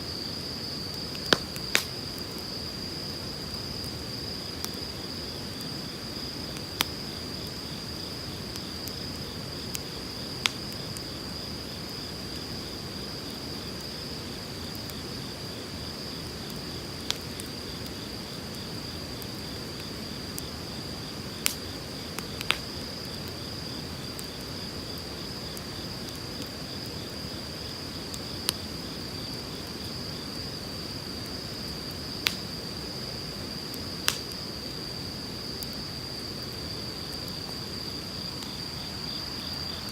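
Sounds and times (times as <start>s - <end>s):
high-pitched insect trill: 0.0s - 39.9s
wood fire crackling and popping: 0.2s - 35.8s.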